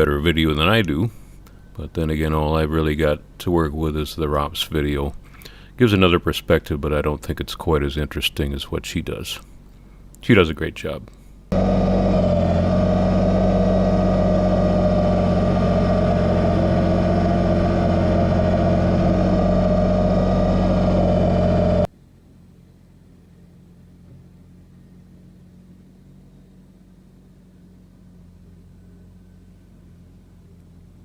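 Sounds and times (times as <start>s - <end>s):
faint low hum: 0.0s - 31.0s
tractor diesel engine running: 11.5s - 21.9s.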